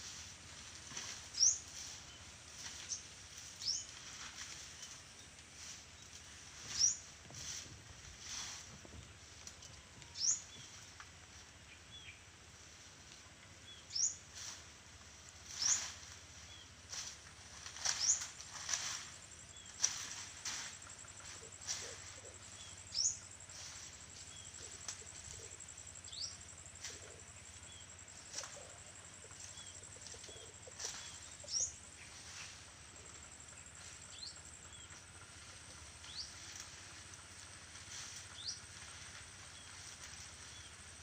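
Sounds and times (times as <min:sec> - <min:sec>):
faint high hiss: 0:00.0 - 0:41.0
birds chirping: 0:17.7 - 0:36.6.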